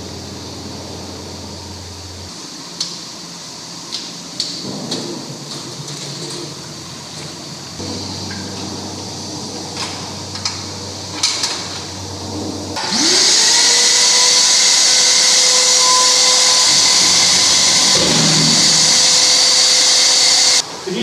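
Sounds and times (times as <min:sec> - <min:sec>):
core drill motor whining: 0:12.8 - 0:20.6.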